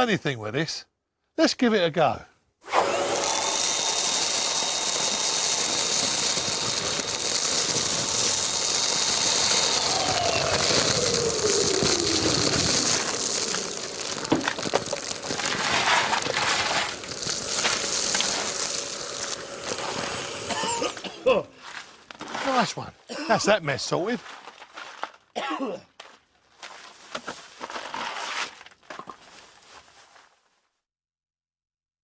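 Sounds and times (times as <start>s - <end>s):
vacuum motor whine: 2.6s - 21.3s
debris clattering through hose: 2.7s - 22.8s.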